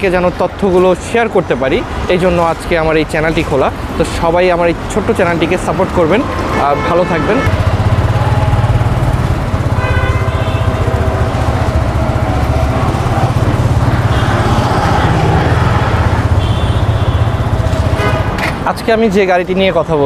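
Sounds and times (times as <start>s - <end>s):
motorcycle engine running steadily: 6.8s - 14.4s, 15.8s - 18.6s.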